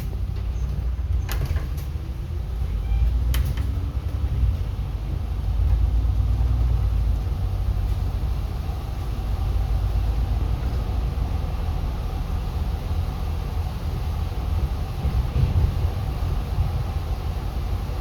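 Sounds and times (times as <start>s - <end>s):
bus engine rumble: 0.0s - 18.0s.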